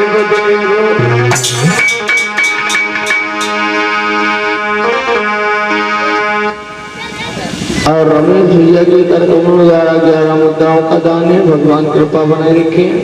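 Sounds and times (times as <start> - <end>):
harmonium melody over drone: 0.0 - 7.7
sharp percussion strikes: 0.2 - 4.8.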